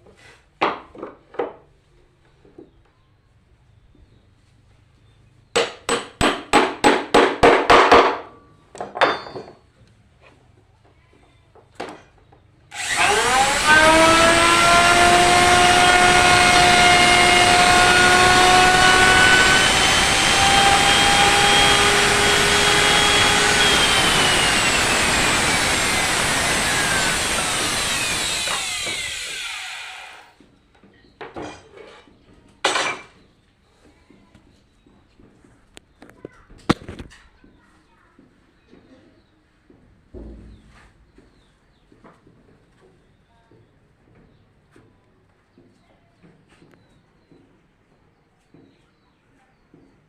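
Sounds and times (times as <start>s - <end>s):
sharp wooden strokes: 12.7s - 30.4s
wood moulding machine whine: 12.7s - 30.4s
wooden knocks: 40.2s - 41.4s.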